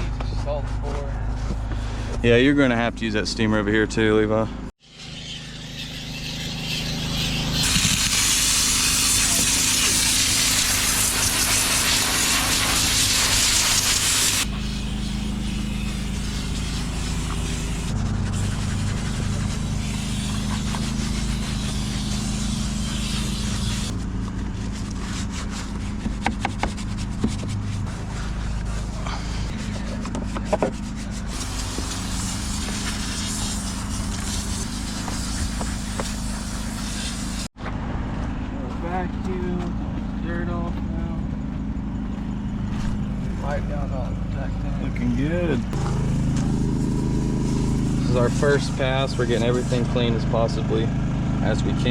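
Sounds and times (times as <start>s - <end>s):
hissing rush: 4.8s - 37.5s, 44.8s - 50.8s
machine hum: 37.6s - 51.9s.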